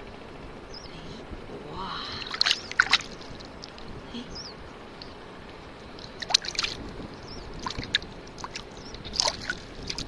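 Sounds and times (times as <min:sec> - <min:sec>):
water sloshing and splashing: 0:02.0 - 0:04.1, 0:04.9 - 0:10.0.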